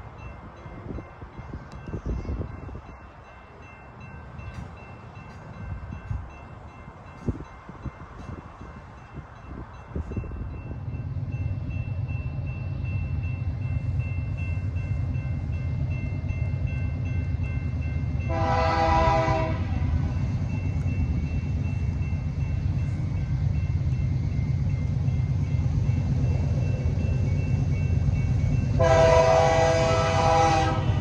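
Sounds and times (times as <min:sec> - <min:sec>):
diesel train rumbling: 0:00.0 - 0:31.0
train horn blast: 0:18.3 - 0:20.1, 0:28.8 - 0:31.0.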